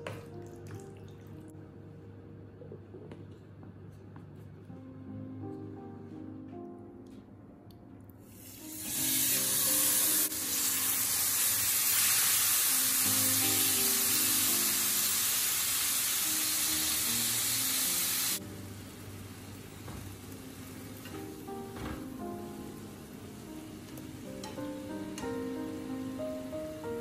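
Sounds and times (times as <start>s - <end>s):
background music: 0.0s - 3.0s, 4.6s - 18.7s, 21.0s - 27.0s
chicken sizzling in a frying pan: 8.4s - 21.7s.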